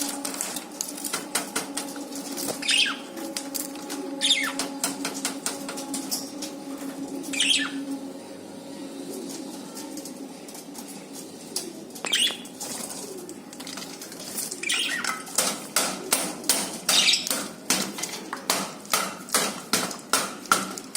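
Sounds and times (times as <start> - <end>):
bird calls: 2.6 - 3.2, 3.9 - 4.8, 7.3 - 8.0, 12.0 - 12.6, 14.6 - 15.3.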